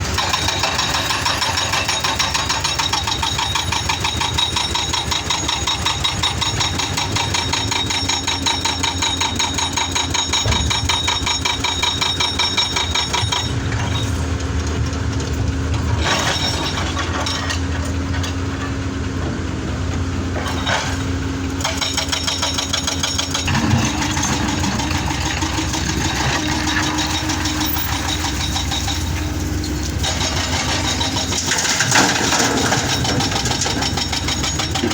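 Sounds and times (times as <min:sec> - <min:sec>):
excavator engine rattling: 0:00.0 - 0:34.9.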